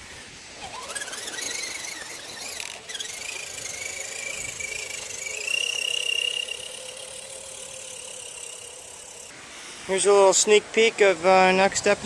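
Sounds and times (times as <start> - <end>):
electric motor whining: 0.0 - 9.3.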